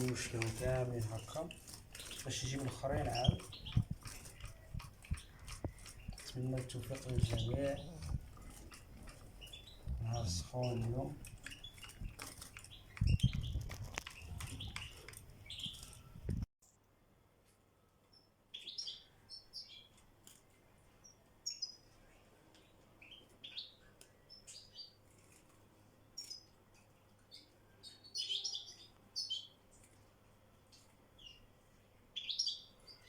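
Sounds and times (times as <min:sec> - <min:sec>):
goldfinches chirping: 0:00.0 - 0:16.1.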